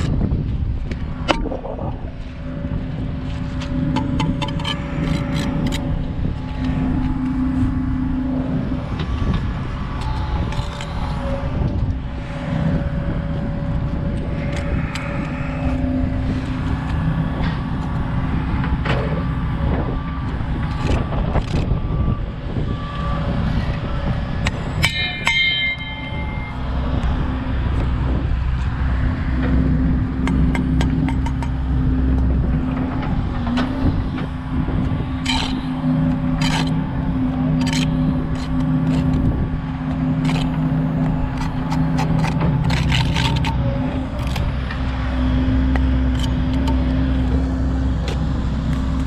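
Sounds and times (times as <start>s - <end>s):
machinery engine drone: 0.0s - 49.0s
wind rumble on microphone: 0.0s - 49.0s
sharp clicks and knocks: 29.4s - 34.3s, 35.2s - 49.0s.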